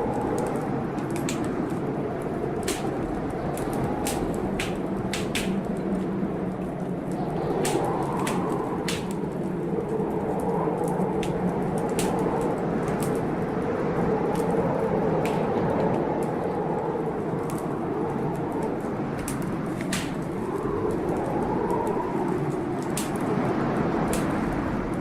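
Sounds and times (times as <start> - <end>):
storm rushing: 0.0 - 25.0
wood fire crackling: 0.0 - 25.0.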